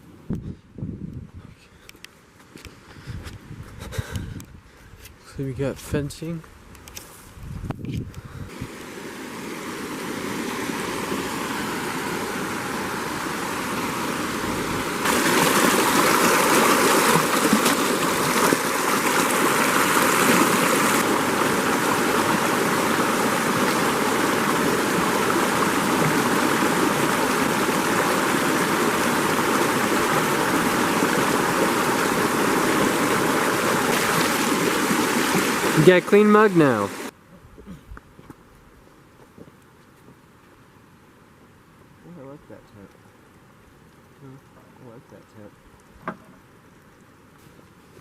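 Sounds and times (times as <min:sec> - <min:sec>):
mountain stream running: 0:08.5 - 0:37.2.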